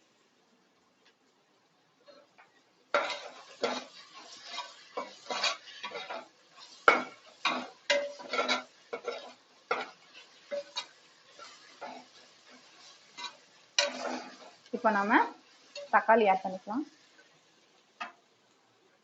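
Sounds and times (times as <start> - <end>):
utensil scraping and knocking pan: 3.0 - 14.6.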